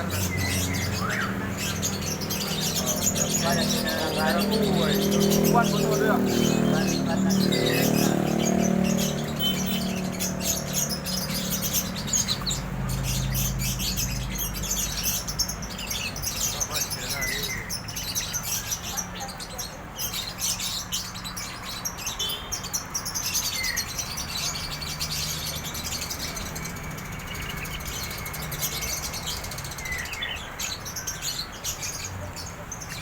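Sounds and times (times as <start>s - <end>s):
bird chattering song: 0.0s - 33.0s
bird whistles: 8.9s - 10.0s.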